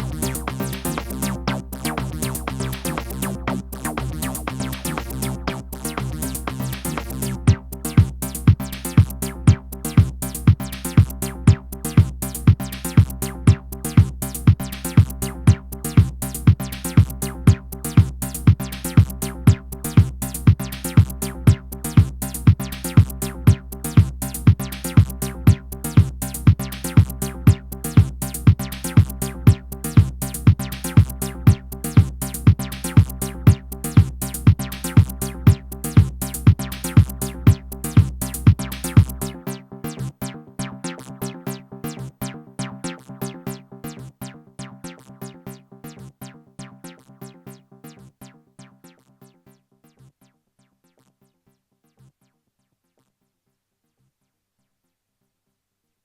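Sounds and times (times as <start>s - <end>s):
fast repeating synth sequence: 0.0s - 39.3s
low bass drone: 0.0s - 39.4s
kick drum: 2.0s - 39.2s.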